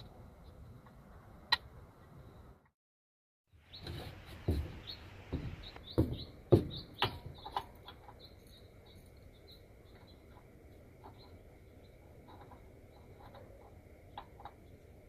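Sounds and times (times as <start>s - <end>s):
small birds chirping: 3.5s - 15.0s
sharp knocks: 3.8s - 7.7s.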